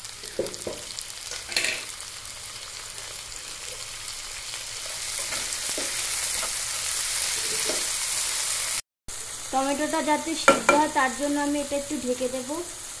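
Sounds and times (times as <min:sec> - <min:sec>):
tomatoes sizzling in oil: 0:00.0 - 0:13.0
spatula scraping pan: 0:04.8 - 0:08.0.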